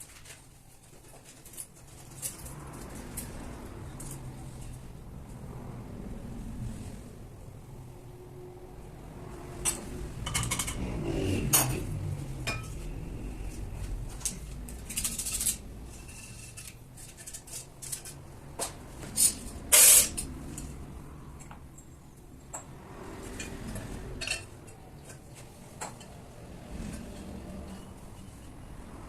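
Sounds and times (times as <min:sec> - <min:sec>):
short hissing bursts: 0:19.7 - 0:20.2.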